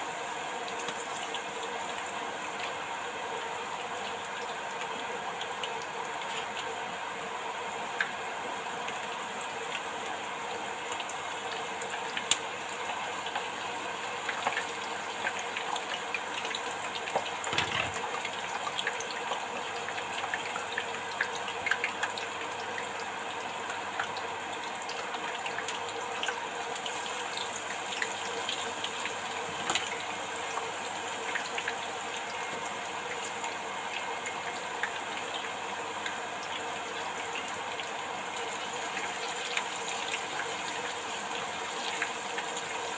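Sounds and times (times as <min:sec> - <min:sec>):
leaves deep-frying in oil: 0:00.0 - 0:42.9.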